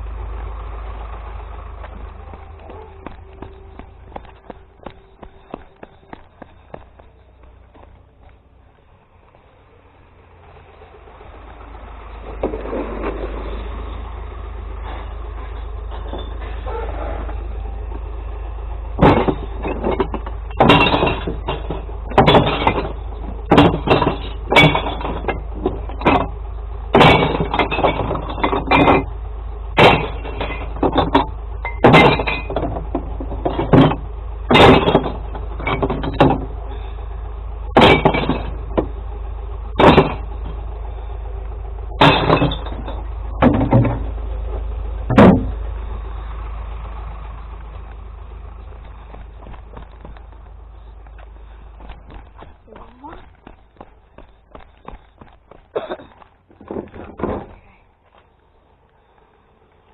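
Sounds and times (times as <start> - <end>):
truck engine idling: 0.0 - 59.9
glass bottles smashing: 19.0 - 25.4, 29.8 - 32.8, 37.8 - 38.6, 42.0 - 43.8.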